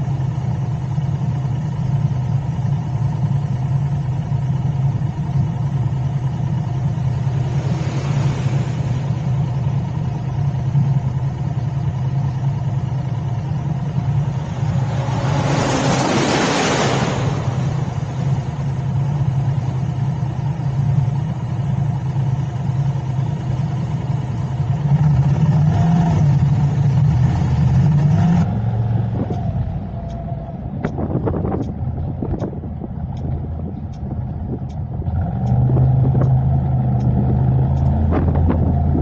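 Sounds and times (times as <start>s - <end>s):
car engine and road hum: 0.0s - 39.0s
loud rush of noise: 14.0s - 19.4s.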